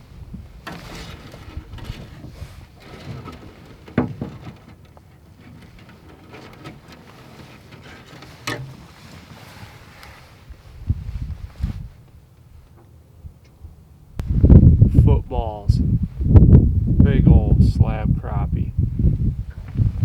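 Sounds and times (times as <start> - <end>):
small knocks and handling noises: 0.6 - 10.4
low steady rumble: 8.3 - 20.0.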